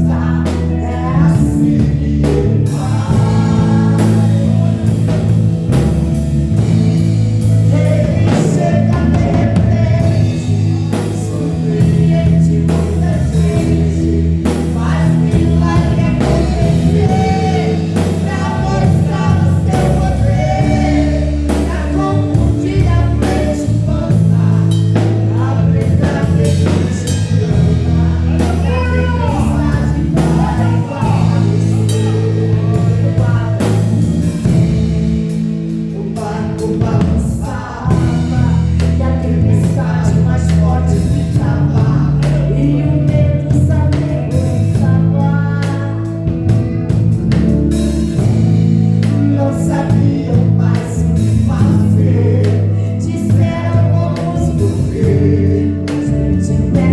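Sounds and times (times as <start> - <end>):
band with bass and drums: 0.0 - 56.9
woman singing: 7.7 - 34.5.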